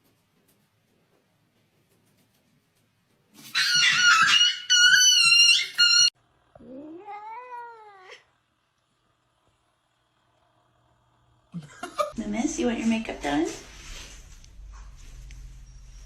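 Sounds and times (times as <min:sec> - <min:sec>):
cat yowling and meowing: 0:03.5 - 0:08.3.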